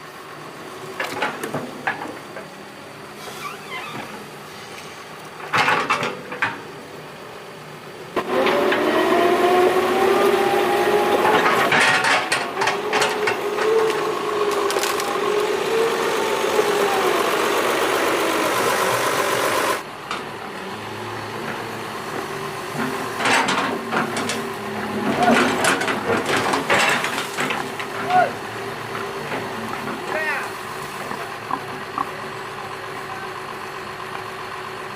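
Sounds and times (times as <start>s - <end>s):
excavator diesel engine running: 0.0s - 34.9s
hydraulic whine: 8.1s - 29.7s.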